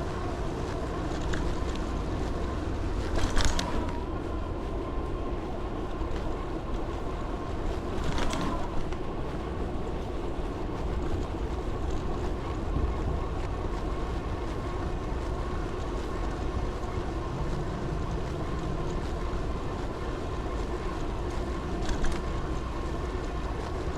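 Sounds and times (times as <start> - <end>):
faint steady whine: 0.0 - 23.9
wind noise on microphone: 0.0 - 23.9.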